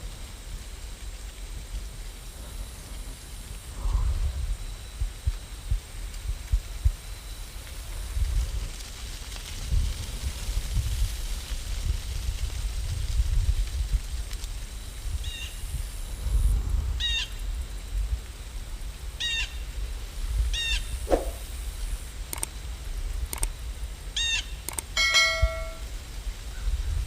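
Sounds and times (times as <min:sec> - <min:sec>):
steady low rumble: 0:19.9 - 0:24.0
birds chirping: 0:24.2 - 0:25.8.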